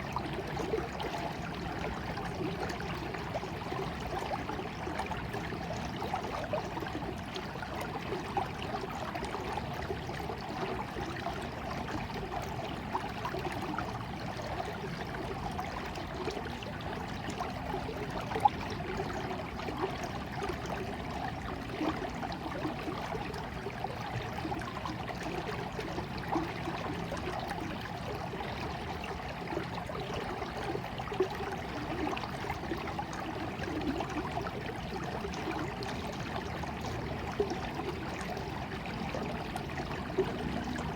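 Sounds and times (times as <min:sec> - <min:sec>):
stream trickling and gurgling: 0:00.0 - 0:40.9
water plinks: 0:00.0 - 0:40.9.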